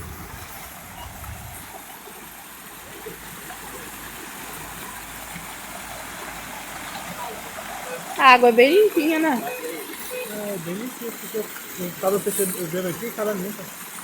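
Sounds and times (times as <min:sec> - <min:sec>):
low rumble: 0:00.0 - 0:01.8
waterfall and stream flowing: 0:00.0 - 0:14.0.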